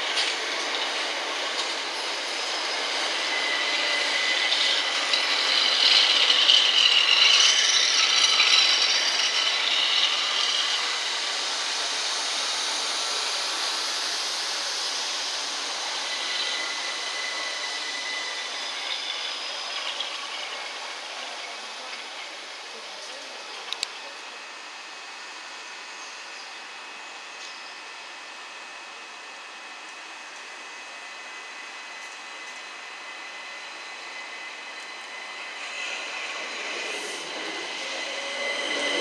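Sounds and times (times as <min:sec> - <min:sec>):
train wheels on rails: 0:00.0 - 0:23.8, 0:31.7 - 0:39.0
high squealing tones: 0:33.7 - 0:39.0.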